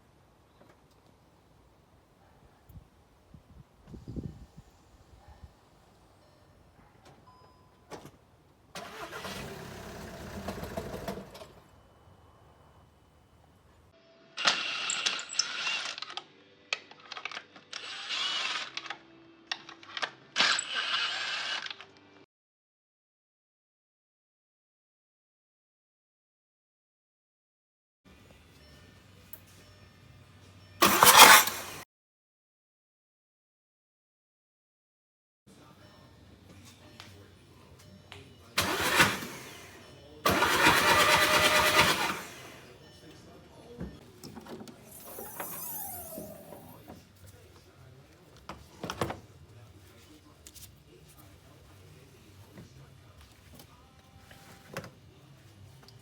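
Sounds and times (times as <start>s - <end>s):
power tool bursts: 8.8s - 11.5s, 30.8s - 31.8s, 38.6s - 42.7s, 44.9s - 46.8s
car engine starter cranking: 8.8s - 11.6s, 30.8s - 31.8s, 38.6s - 42.7s, 44.7s - 46.9s.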